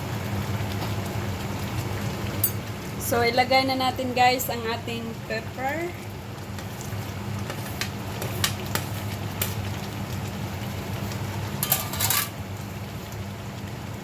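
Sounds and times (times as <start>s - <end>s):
utensils clinking against pot: 11.6s - 12.4s.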